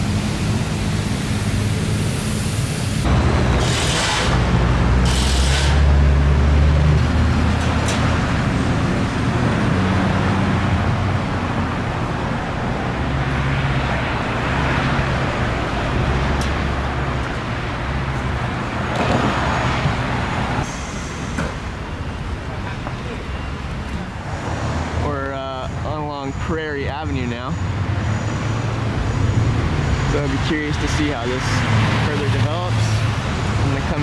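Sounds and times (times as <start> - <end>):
road noise: 0.0 - 34.0
vehicle engines running: 0.0 - 34.0.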